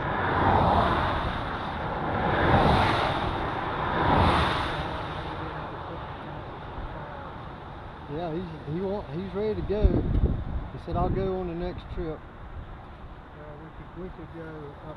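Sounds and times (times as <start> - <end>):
vehicles passing on road: 0.0 - 14.9.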